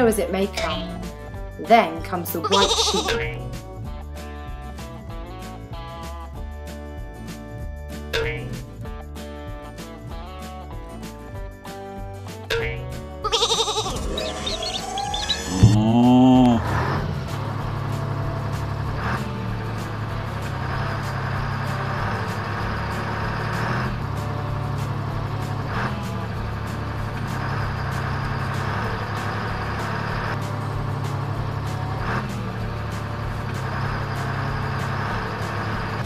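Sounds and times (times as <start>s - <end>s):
truck engine idling: 13.3s - 36.0s.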